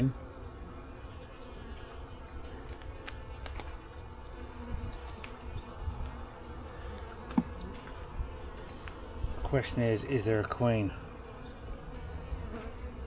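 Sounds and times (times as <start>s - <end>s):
honeybees buzzing: 0.0s - 13.0s
hive frames clicking: 2.4s - 8.2s.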